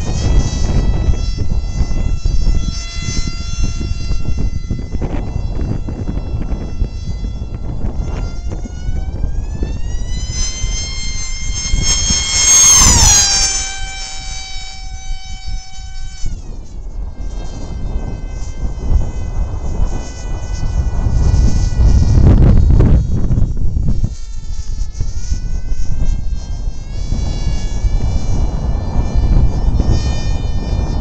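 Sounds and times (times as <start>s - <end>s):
model plane motor whining: 0.0s - 31.0s
wind rumble on microphone: 0.0s - 31.0s.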